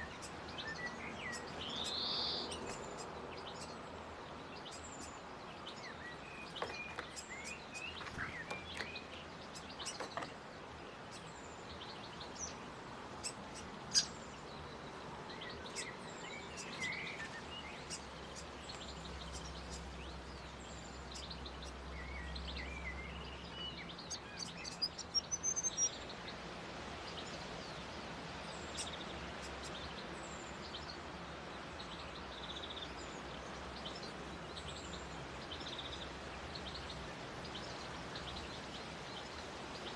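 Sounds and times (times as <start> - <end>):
small birds chirping: 0.0 - 39.9
steady outdoor hiss: 0.0 - 39.9.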